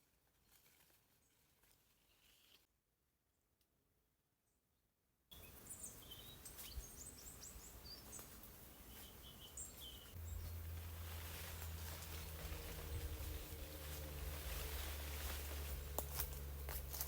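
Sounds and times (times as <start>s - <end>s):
birds chirping: 5.4s - 15.9s
low steady hum: 10.0s - 17.0s.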